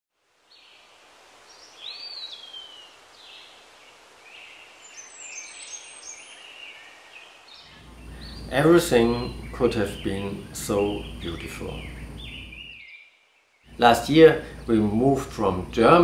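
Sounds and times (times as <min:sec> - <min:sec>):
faint outdoor hiss: 0:00.1 - 0:16.0
birds chirping and whistling: 0:04.3 - 0:13.8.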